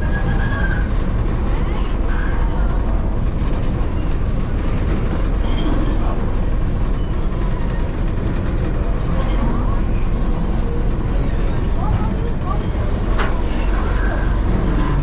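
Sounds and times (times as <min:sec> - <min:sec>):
low engine rumble: 0:00.0 - 0:15.0
faint voices: 0:08.7 - 0:15.0.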